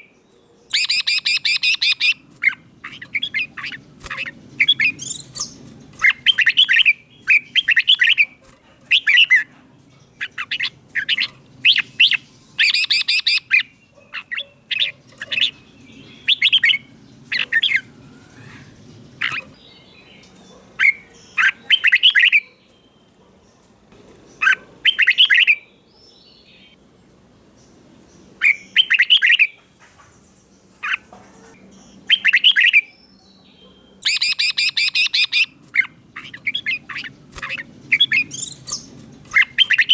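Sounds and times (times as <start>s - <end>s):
bird warbling: 0.7s - 9.5s, 10.2s - 22.7s, 34.0s - 39.9s.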